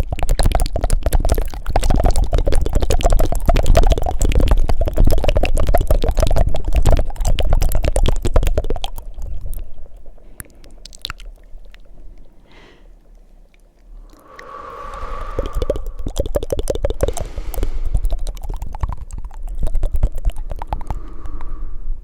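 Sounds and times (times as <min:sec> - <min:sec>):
mouth clicks: 0:00.0 - 0:22.0
wet tongue fluttering: 0:00.0 - 0:22.0
soft breath: 0:10.1 - 0:11.0, 0:11.7 - 0:18.8, 0:20.6 - 0:22.0.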